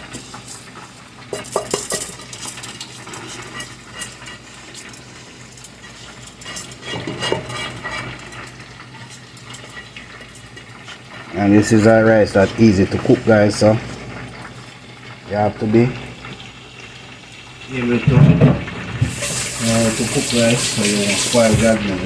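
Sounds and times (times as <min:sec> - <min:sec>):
utensil clinking and scraping container: 0:00.1 - 0:10.9, 0:19.0 - 0:22.0.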